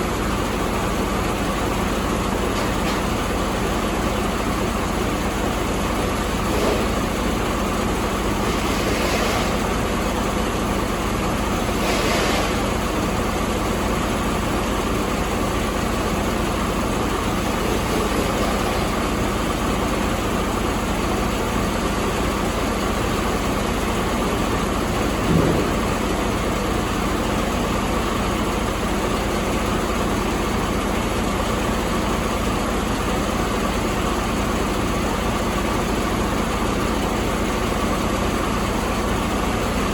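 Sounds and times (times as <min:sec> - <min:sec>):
diesel engine idling: 0:00.0 - 0:39.9
brief thump: 0:25.2 - 0:25.9.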